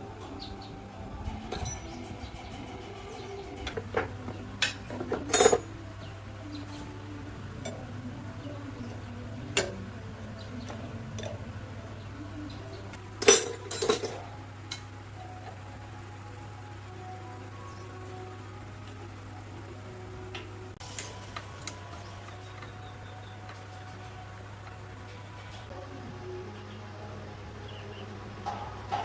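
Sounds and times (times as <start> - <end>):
metal tools clinking: 1.5 - 2.0, 4.6 - 5.7, 13.2 - 14.9.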